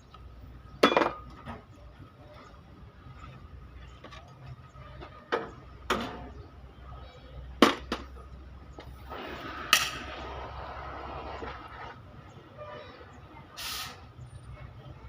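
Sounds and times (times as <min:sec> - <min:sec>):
steady rushing noise: 0:09.0 - 0:12.4.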